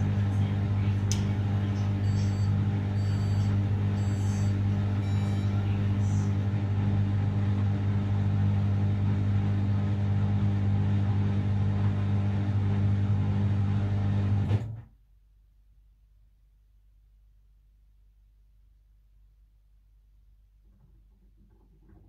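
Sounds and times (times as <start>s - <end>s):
washing machine humming: 0.0s - 14.8s.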